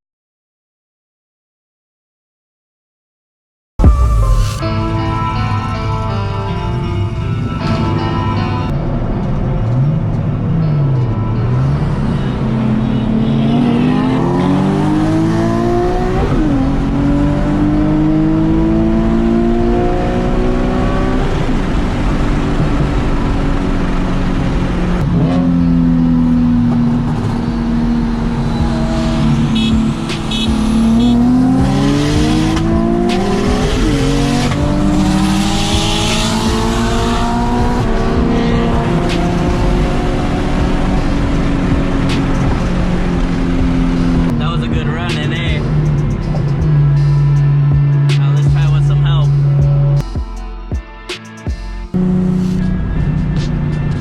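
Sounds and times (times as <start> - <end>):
short high beeps: 3.8 - 6.0
car engine accelerating: 3.8 - 50.1, 51.9 - 54.0.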